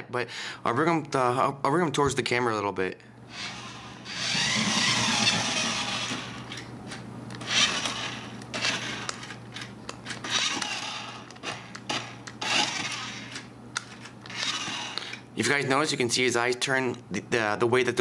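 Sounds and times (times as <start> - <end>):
toy car motor whirring: 3.3 - 6.6, 7.4 - 13.4, 14.2 - 15.2.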